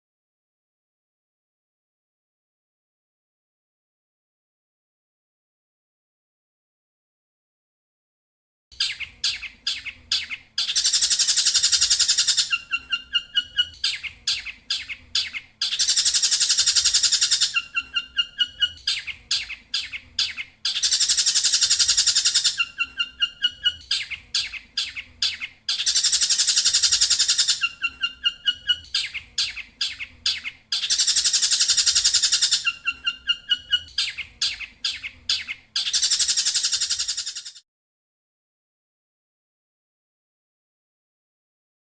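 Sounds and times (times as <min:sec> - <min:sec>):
bird chirps and ringing trill: 0:08.8 - 0:37.6.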